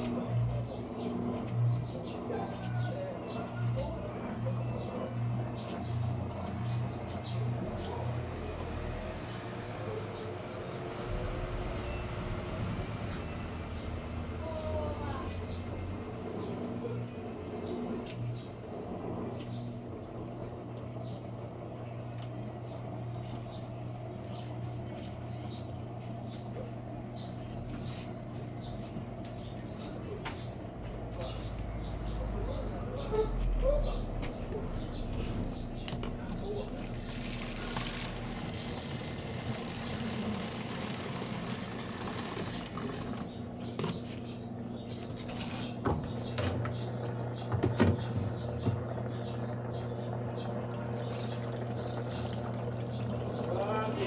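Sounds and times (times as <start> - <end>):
small birds chirping: 0.0 - 54.0
washing machine humming: 0.0 - 54.0
deep rumble: 9.8 - 20.2, 30.8 - 37.6.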